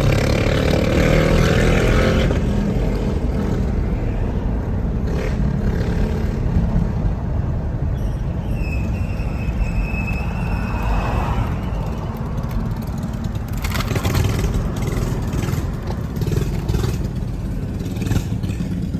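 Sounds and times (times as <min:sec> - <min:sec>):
small engine rumbling: 0:00.0 - 0:18.9.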